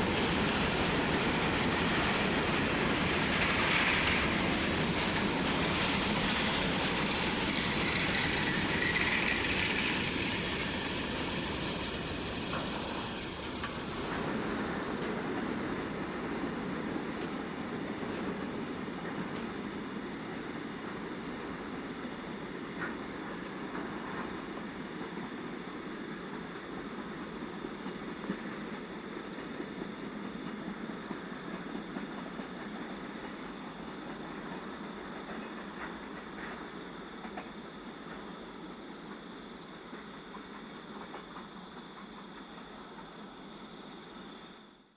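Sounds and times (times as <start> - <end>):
train wheels clattering on rails: 0.0 - 44.2
high wheel squeal: 6.2 - 11.6.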